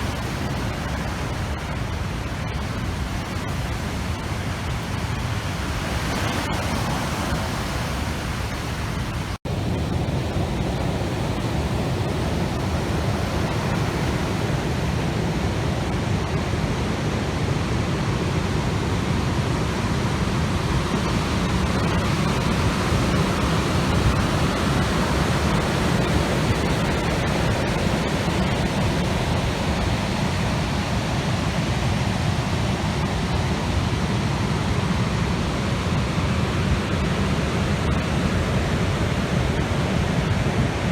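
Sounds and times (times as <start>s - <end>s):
rough water rushing and breaking: 0.0s - 40.9s.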